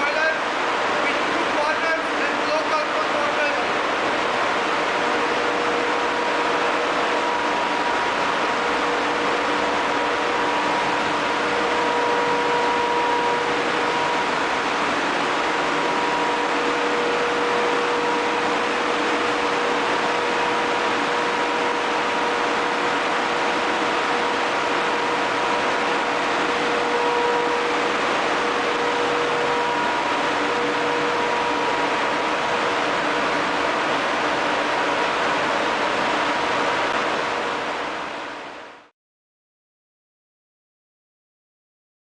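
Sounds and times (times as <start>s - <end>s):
engine room machinery humming: 0.0s - 38.9s.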